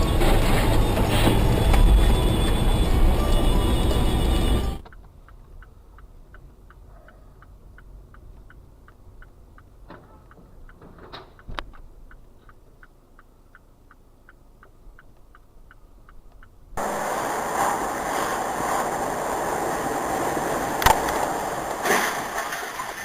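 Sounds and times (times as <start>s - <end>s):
wind and road noise: 0.0s - 23.0s
turn signal ticking: 4.8s - 16.8s.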